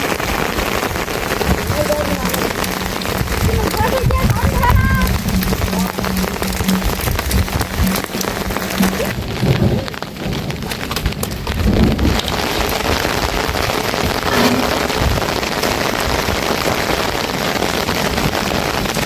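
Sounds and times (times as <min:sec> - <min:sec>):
heavy rain: 0:00.0 - 0:19.0
low rumble: 0:01.5 - 0:09.6.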